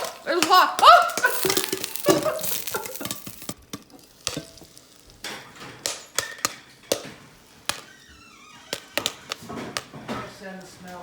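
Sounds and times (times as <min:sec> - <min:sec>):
sharp crackles and clicks: 0:01.1 - 0:06.6
paper bag crinkling: 0:01.2 - 0:03.6.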